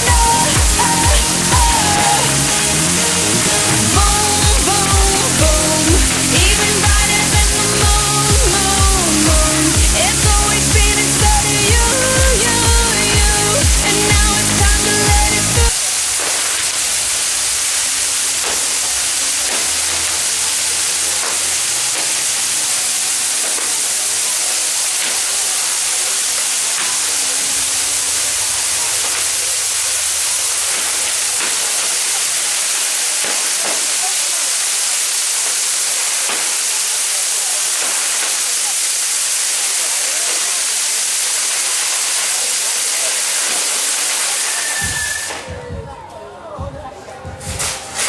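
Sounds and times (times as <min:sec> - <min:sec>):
dance-pop song: 0:00.0 - 0:15.8, 0:44.8 - 0:48.0
fireworks fountains hissing: 0:00.0 - 0:46.2, 0:46.9 - 0:48.0.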